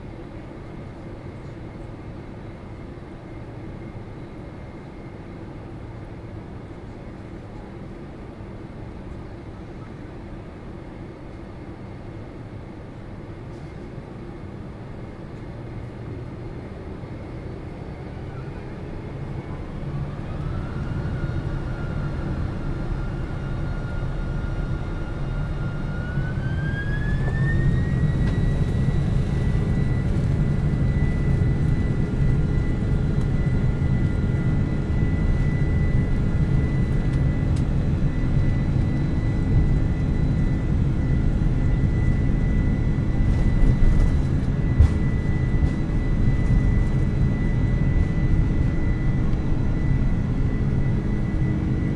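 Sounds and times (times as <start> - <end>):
jet engines whining: 17.8 - 51.9.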